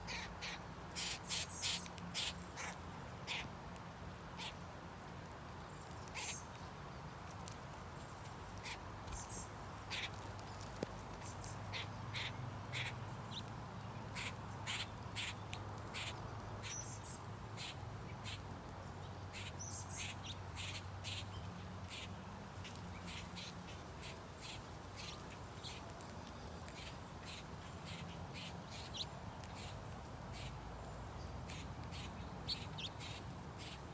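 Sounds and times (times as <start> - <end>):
birds calling: 0.0 - 3.5.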